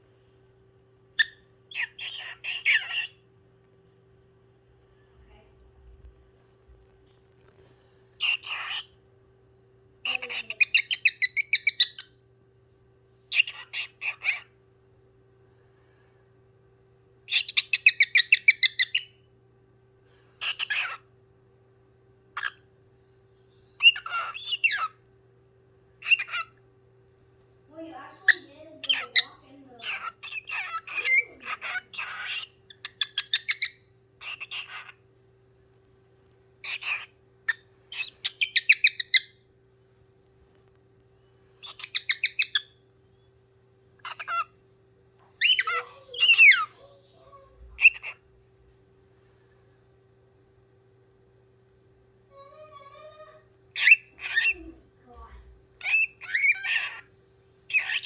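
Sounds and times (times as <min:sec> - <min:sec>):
parrot calling and chirping: 0:01.1 - 0:03.3, 0:08.2 - 0:09.0, 0:10.0 - 0:12.2, 0:13.3 - 0:14.5, 0:17.3 - 0:19.2, 0:20.4 - 0:21.1, 0:22.3 - 0:22.7, 0:23.8 - 0:25.0, 0:26.0 - 0:26.6, 0:27.7 - 0:35.0, 0:36.6 - 0:39.5, 0:41.4 - 0:42.9, 0:44.0 - 0:44.6, 0:45.3 - 0:48.3, 0:52.3 - 0:54.8, 0:55.8 - 0:58.0.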